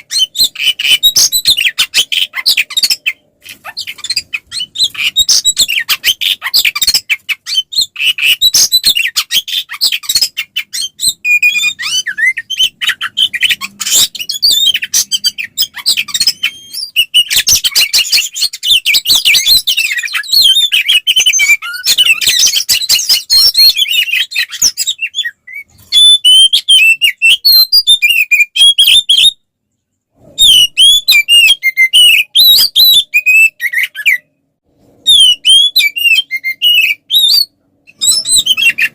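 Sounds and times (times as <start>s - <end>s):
bird singing chattering whistles: 35.1s - 38.9s.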